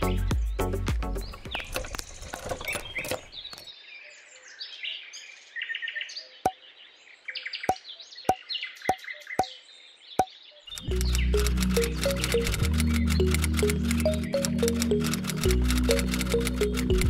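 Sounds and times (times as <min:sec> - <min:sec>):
background music: 0:00.0 - 0:01.4, 0:10.8 - 0:17.0
birds chirping: 0:00.4 - 0:05.5, 0:06.2 - 0:17.0
short sharp clicks: 0:10.7 - 0:17.0.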